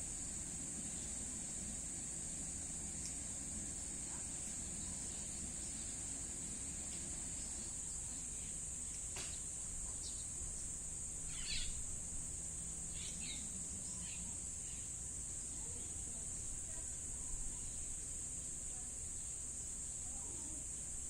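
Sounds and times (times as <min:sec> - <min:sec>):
high-pitched insect drone: 0:11.2 - 0:11.8
short bird chirps: 0:11.3 - 0:11.8.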